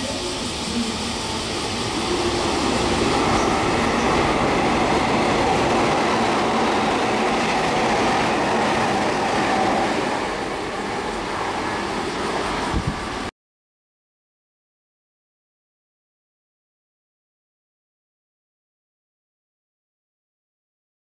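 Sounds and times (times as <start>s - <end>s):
train wheel-on-rail noise: 0.0s - 13.3s.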